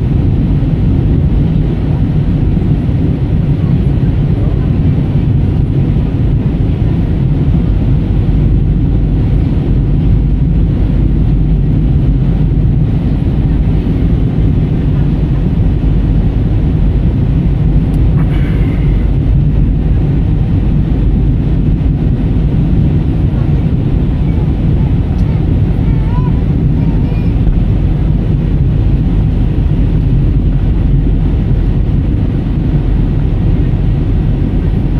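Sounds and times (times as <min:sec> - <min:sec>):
airliner cabin rumble: 0:00.0 - 0:34.9.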